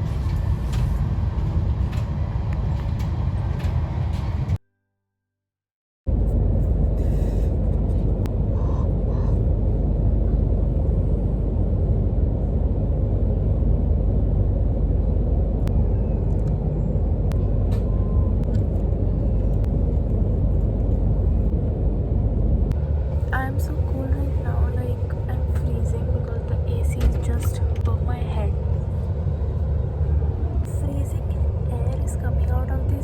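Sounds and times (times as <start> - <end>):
train rumbling inside carriage: 0.0 - 4.6, 6.1 - 33.0.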